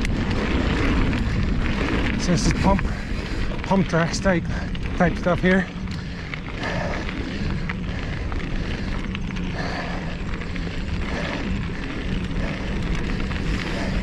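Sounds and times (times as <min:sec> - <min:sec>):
bike clicks and rattles: 0:00.0 - 0:14.0
tyre noise on dirt: 0:00.0 - 0:14.0
wind rush on microphone: 0:00.0 - 0:14.0.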